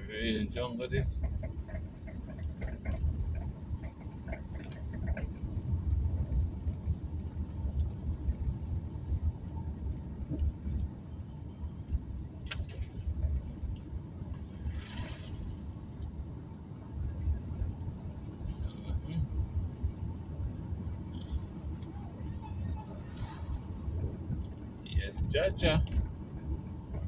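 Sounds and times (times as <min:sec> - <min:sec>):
car road rumble: 0:00.0 - 0:27.0.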